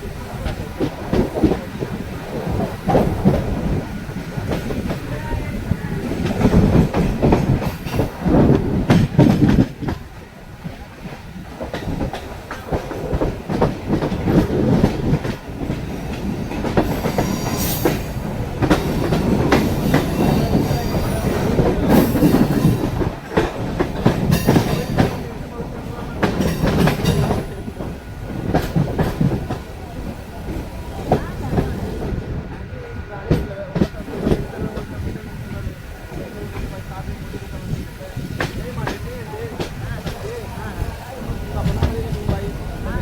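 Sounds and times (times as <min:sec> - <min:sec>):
wheels clacking over rail joints: 0:00.0 - 0:31.9
train rumble and rattle: 0:00.0 - 0:43.0.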